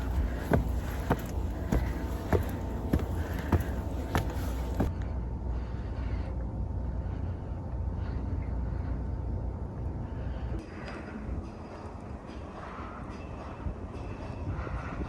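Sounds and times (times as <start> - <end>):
wind rumbling on microphone: 10.5 - 15.0.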